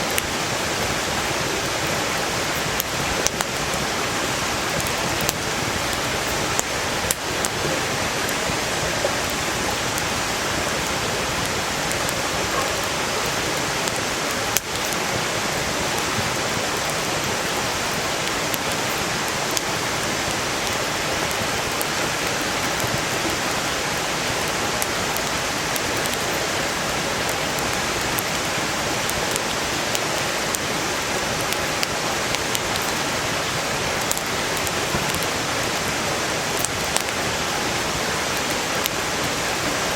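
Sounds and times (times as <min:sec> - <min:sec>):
campfire crackling and popping: 0:00.0 - 0:39.7
stream rushing: 0:00.0 - 0:39.9.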